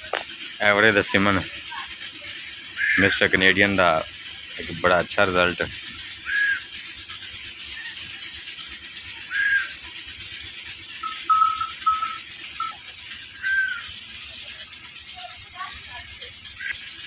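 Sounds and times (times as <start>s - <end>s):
high fluttering hiss: 0.0s - 17.0s
birds whistling short notes: 5.9s - 7.8s, 8.7s - 9.8s, 10.9s - 14.2s.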